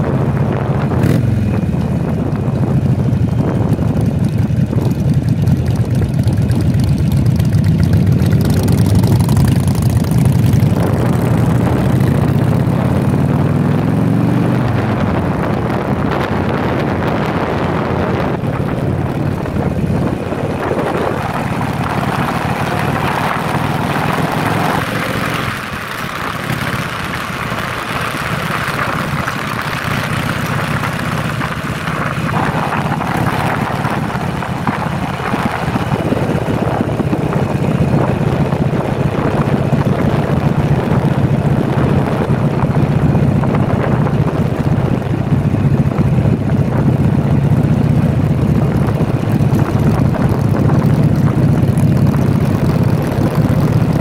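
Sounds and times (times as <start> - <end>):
wind on microphone: 0.0 - 6.7, 8.4 - 54.0
motorcycle engine accelerating: 0.0 - 54.0.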